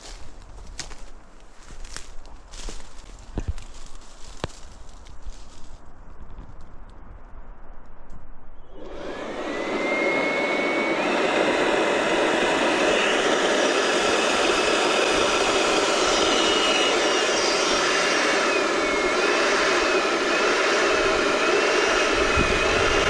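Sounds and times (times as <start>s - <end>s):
rush of air: 7.6s - 23.0s
electric blower motor whining: 8.6s - 23.0s.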